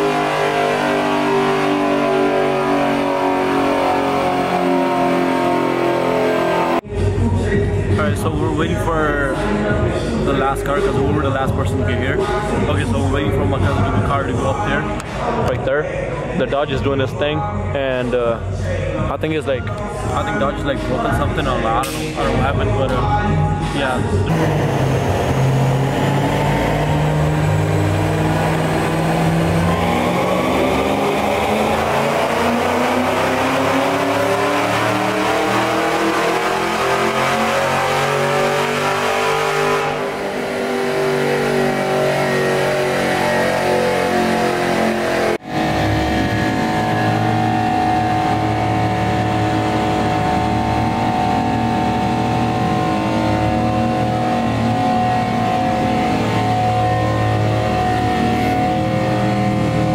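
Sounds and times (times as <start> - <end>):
car engine revving on dyno: 0.0 - 6.9, 24.2 - 59.9
engine running steadily: 24.0 - 38.7, 44.4 - 59.9.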